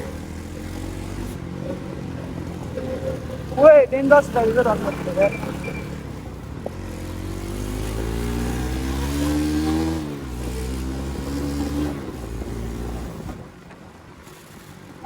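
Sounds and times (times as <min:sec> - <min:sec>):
motorcycle engine accelerating hard: 0:00.0 - 0:15.0.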